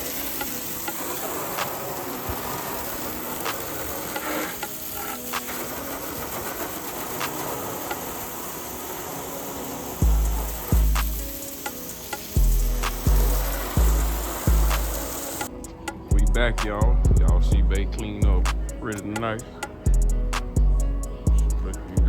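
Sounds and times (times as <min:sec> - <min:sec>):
steady hissing noise: 0:00.0 - 0:22.0
deep bass music: 0:10.0 - 0:11.3, 0:12.4 - 0:15.1, 0:16.1 - 0:19.1, 0:19.9 - 0:22.0.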